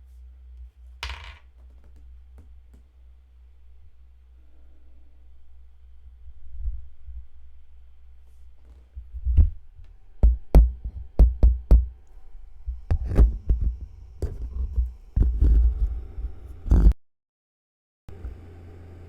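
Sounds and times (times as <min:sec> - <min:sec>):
heavy thumps and knocks: 0:10.2 - 0:12.0, 0:12.7 - 0:16.0.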